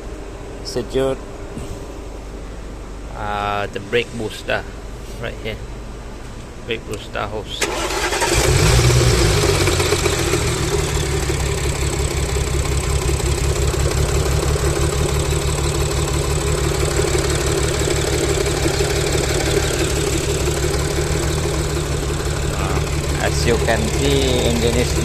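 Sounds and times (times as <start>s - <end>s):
car engine idling roughly: 7.7s - 25.0s.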